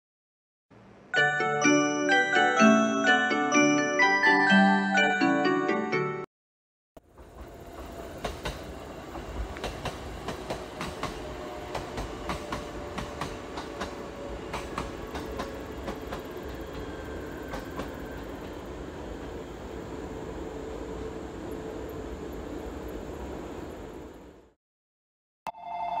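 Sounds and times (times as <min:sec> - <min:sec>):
train rumbling: 0:07.0 - 0:24.5
train wheels clacking over rail joints: 0:07.1 - 0:18.6.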